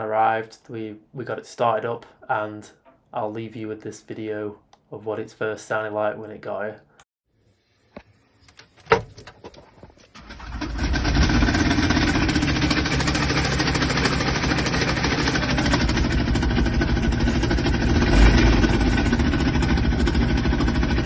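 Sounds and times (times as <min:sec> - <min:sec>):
diesel engine starting and idling: 0:10.1 - 0:21.0.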